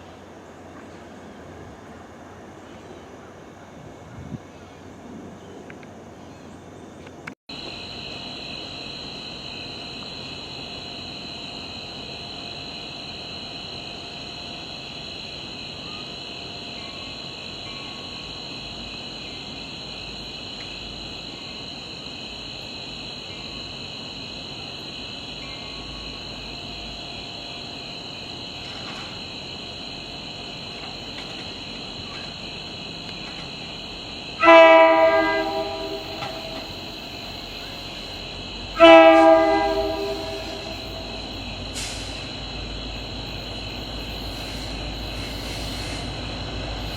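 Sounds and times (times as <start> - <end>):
train horn blasts: 34.4 - 36.8, 38.7 - 41.6.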